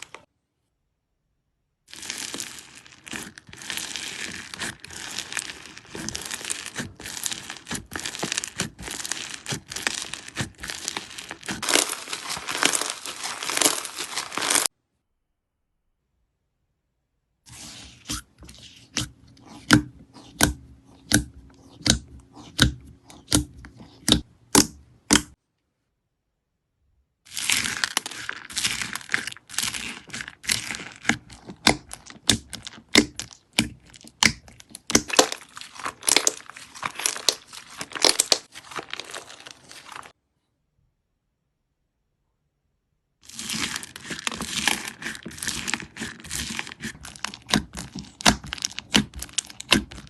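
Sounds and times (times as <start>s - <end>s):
slime popping and crackling: 1.9s - 14.7s, 27.3s - 40.1s, 43.2s - 50.0s.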